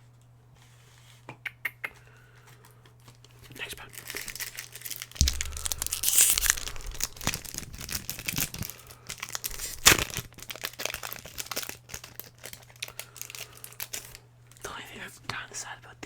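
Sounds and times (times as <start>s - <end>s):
foil wrapper crinkling: 3.0s - 14.6s.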